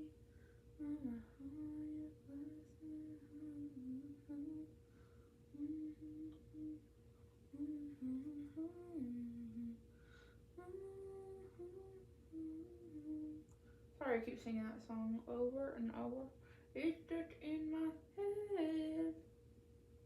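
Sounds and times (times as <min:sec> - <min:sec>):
woman humming a tune: 0:00.8 - 0:04.7, 0:05.5 - 0:06.8, 0:07.5 - 0:09.8, 0:10.6 - 0:13.5, 0:16.8 - 0:19.2.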